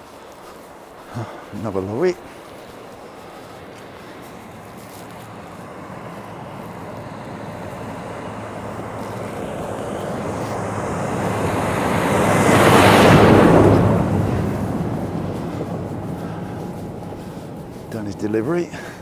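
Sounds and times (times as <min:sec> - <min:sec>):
lorry driving past: 0:00.4 - 0:19.0.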